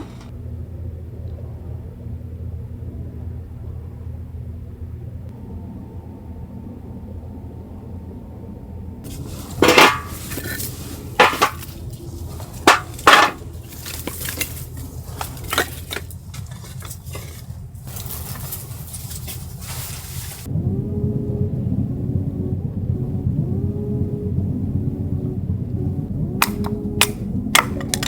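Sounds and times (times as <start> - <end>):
steady low rumble: 0.0 - 28.0
cookware clinking and knocking: 9.6 - 11.8, 12.6 - 14.6.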